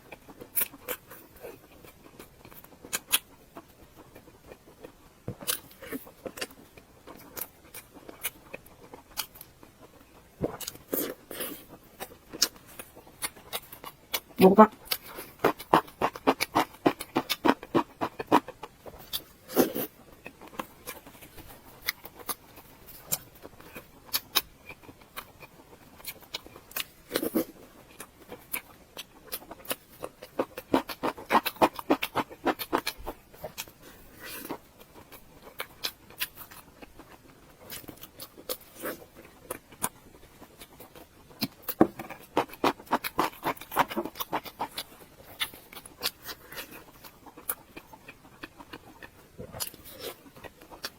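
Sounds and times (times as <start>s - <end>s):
crunchy chewing: 0.0s - 50.9s.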